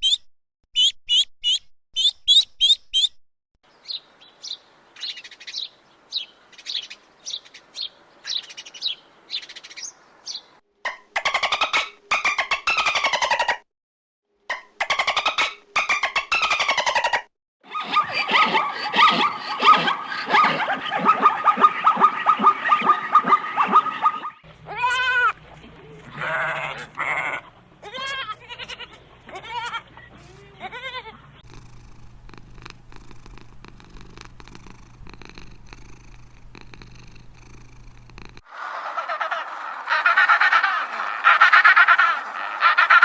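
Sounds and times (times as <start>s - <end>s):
animals calling: 16.4s - 31.4s, 38.5s - 43.0s.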